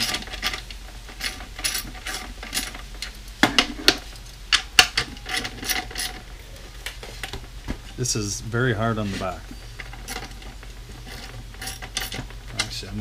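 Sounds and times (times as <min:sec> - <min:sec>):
metal hardware ticks and rattles: 0:00.0 - 0:13.0.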